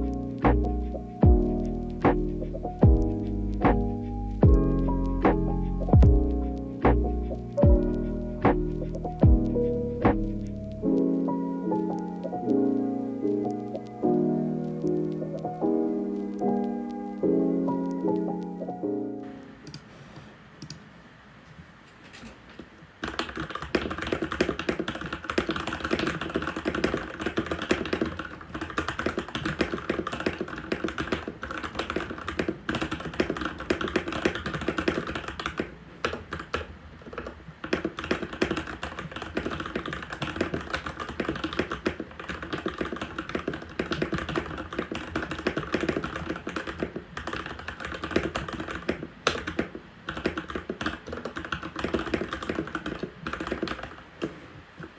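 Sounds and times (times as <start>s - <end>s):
mechanical keyboard typing: 23.0s - 54.9s.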